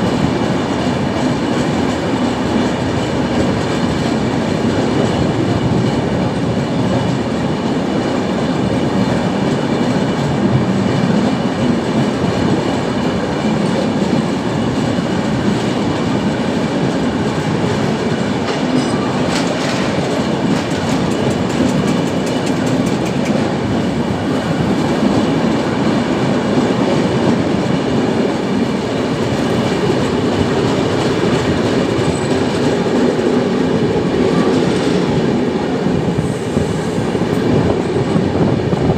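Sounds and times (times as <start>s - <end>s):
train wheels rumbling on rail: 0.0s - 38.9s
rapid clicks of wheels: 18.1s - 23.5s.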